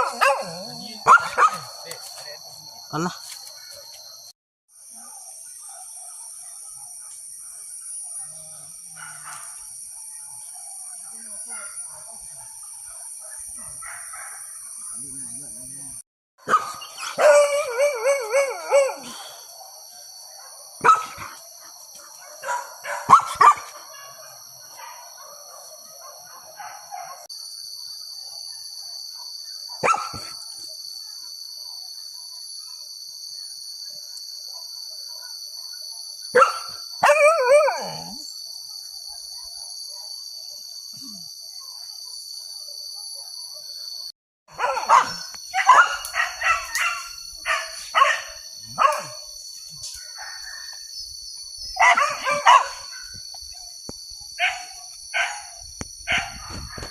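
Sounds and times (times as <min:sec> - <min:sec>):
dogs barking: 0:00.0 - 0:02.0, 0:12.5 - 0:14.5, 0:16.4 - 0:27.3, 0:29.2 - 0:30.4, 0:36.3 - 0:38.3, 0:44.5 - 0:49.3, 0:51.8 - 0:53.1, 0:54.4 - 0:56.9.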